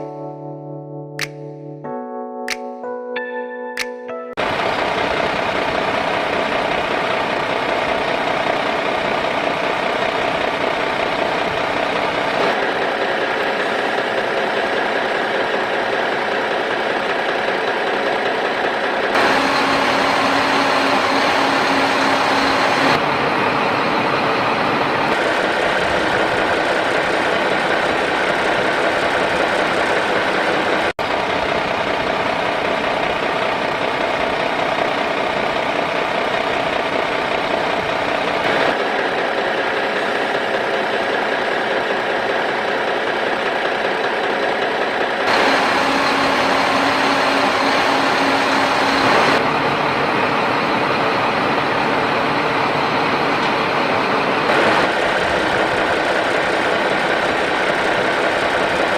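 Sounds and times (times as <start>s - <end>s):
motor humming: 45.3s - 50.0s.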